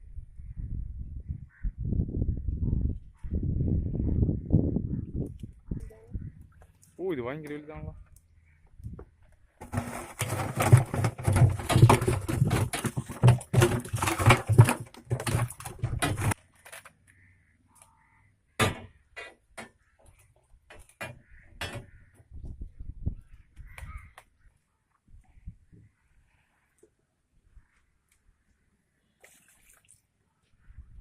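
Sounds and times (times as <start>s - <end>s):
fish thrashing and splashing: 9.6s - 16.8s.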